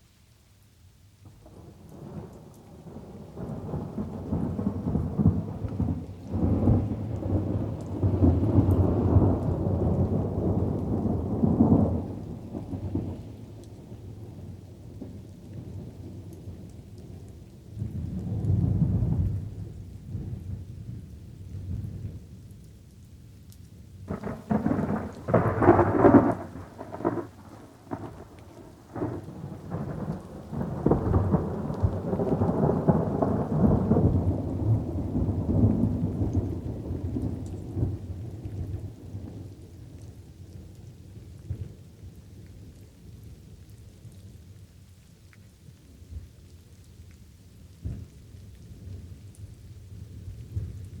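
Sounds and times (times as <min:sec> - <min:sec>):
light rain: 0:00.0 - 0:51.0
thunder clap and rumble: 0:01.6 - 0:13.2, 0:24.1 - 0:40.1, 0:47.8 - 0:51.0.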